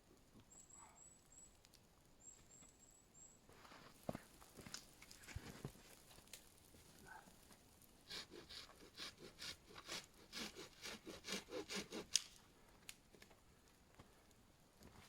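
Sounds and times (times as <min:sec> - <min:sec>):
hand saw cutting wood: 0:08.1 - 0:12.3.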